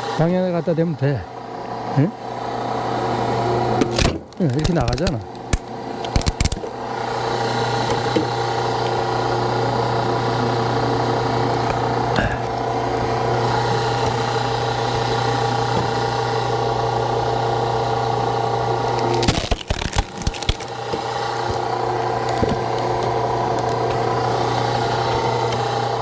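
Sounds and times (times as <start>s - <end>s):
hydraulic pump humming: 0.0s - 26.0s
wood splitting cracks: 3.8s - 6.8s, 8.0s - 9.2s, 18.8s - 25.7s.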